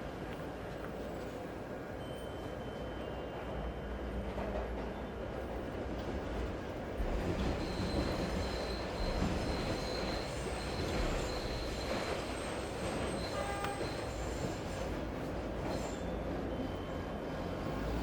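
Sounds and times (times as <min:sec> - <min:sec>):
train wheels squealing on rails: 0:01.0 - 0:05.8, 0:07.0 - 0:18.0.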